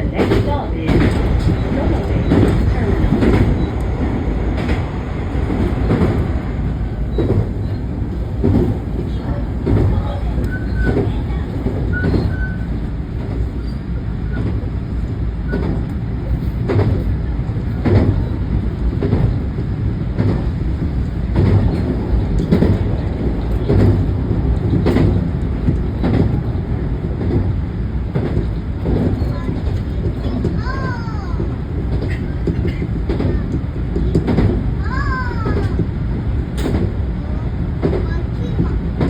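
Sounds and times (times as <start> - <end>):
train wheels rumbling on rails: 0.0 - 39.0
wheels clacking over rail joints: 0.0 - 39.0.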